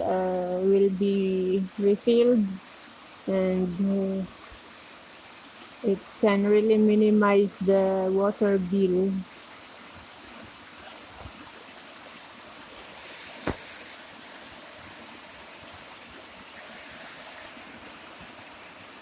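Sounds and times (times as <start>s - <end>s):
sharp knock: 13.4s - 13.7s.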